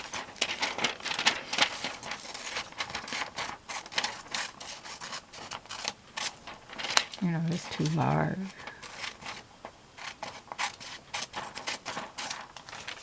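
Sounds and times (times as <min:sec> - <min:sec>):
magazine paper rustling: 0:00.0 - 0:13.0.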